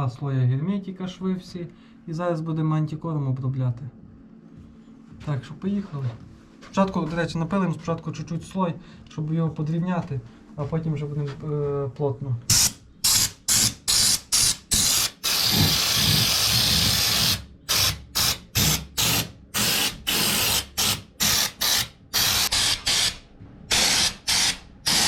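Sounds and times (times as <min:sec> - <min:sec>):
spray gun hissing bursts: 0:12.5 - 0:25.0.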